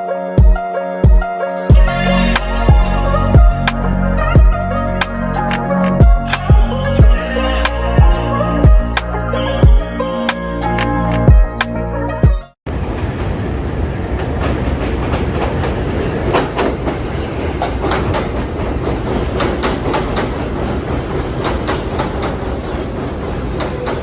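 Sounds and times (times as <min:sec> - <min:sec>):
subway train rumbling: 0:01.7 - 0:09.0, 0:12.6 - 0:24.0
wheels clicking over rail joints: 0:14.2 - 0:24.0.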